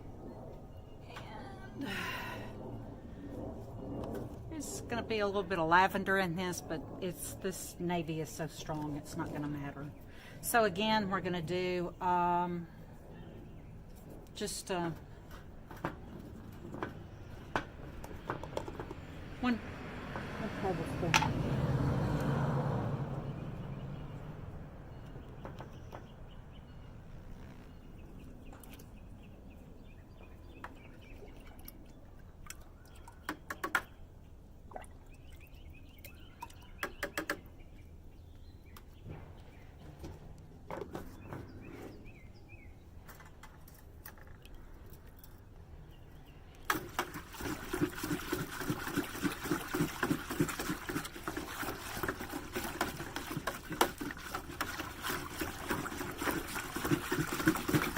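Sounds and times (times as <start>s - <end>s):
water splashing into a container: 46.7s - 57.9s.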